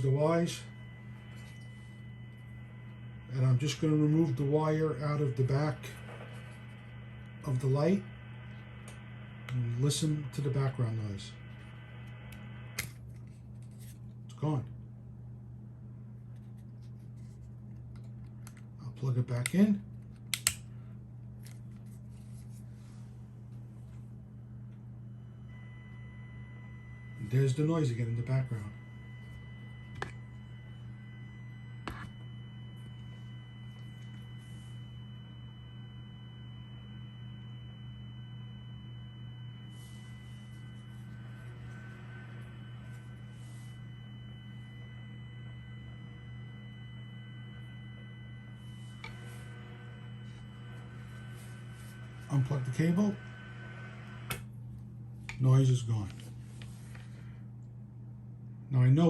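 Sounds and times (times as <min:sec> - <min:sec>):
faint high interference tones: 0:00.0 - 0:14.7, 0:23.8 - 0:54.6
speaker low hum: 0:00.0 - 0:59.0.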